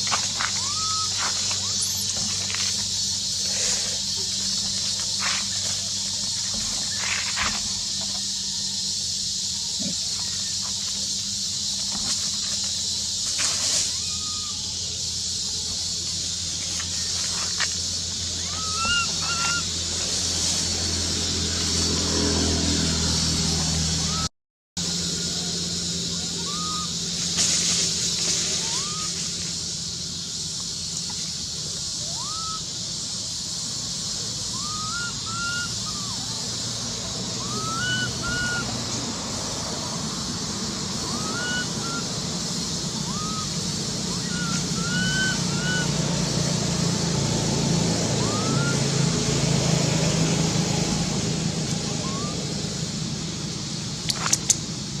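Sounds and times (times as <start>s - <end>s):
young monkey squeaking: 0.0s - 8.7s, 13.6s - 15.0s, 18.4s - 19.7s, 26.3s - 27.0s, 28.5s - 29.2s, 32.0s - 32.6s, 34.6s - 36.4s, 37.4s - 38.8s, 41.0s - 42.1s, 43.0s - 46.1s, 48.2s - 48.8s, 51.8s - 52.5s, 54.1s - 54.6s
insect hiss: 0.0s - 55.0s
sharp clicks: 54.0s - 54.7s.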